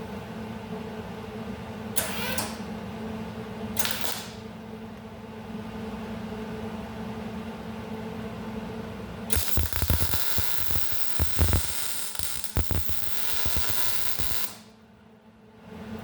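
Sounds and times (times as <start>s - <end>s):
arc welder crackling hiss: 3.8s - 4.4s, 9.3s - 14.7s.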